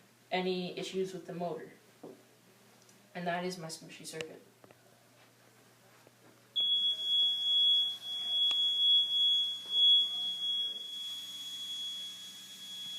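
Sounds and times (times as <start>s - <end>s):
high-pitched buzzer tone: 6.6s - 12.9s.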